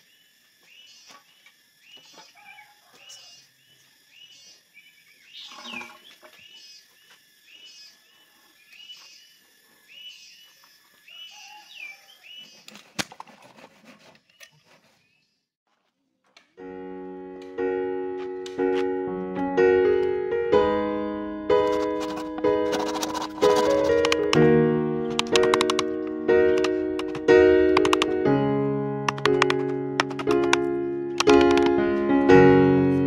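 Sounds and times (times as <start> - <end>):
bird chirping: 0.0 - 12.7
piano music: 16.6 - 33.0
sharp click: 25.1 - 25.9.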